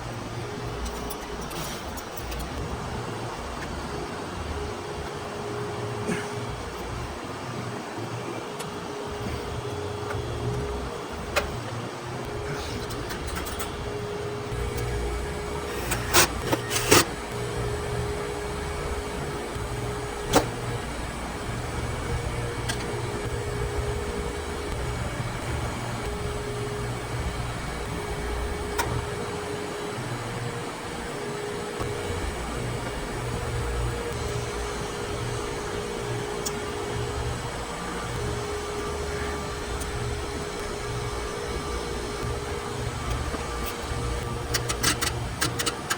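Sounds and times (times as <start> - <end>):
vacuum pump running: 0.0 - 45.9.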